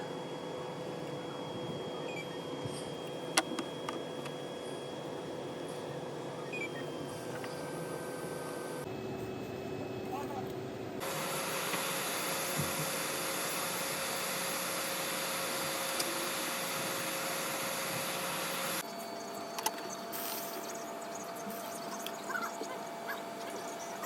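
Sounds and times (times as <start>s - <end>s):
hot air station hissing: 11.0s - 18.8s.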